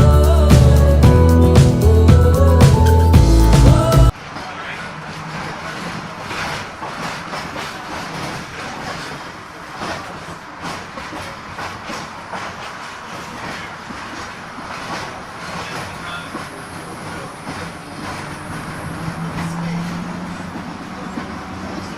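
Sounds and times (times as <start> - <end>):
tram wheels clicking over rail joints: 4.4 - 21.9
tram low hum and running noise: 14.8 - 21.9.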